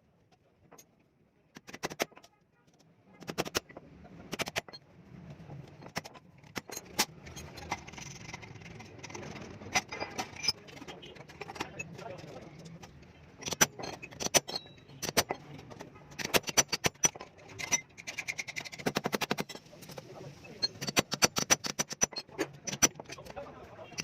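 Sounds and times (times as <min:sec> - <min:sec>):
metal parts clinking: 0:05.7 - 0:20.0.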